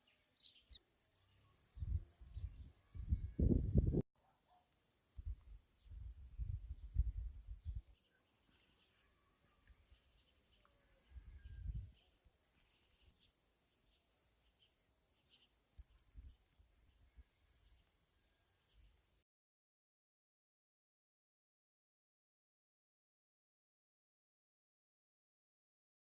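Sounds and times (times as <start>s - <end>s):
faint high insect trill: 0.0s - 4.0s, 8.5s - 19.2s.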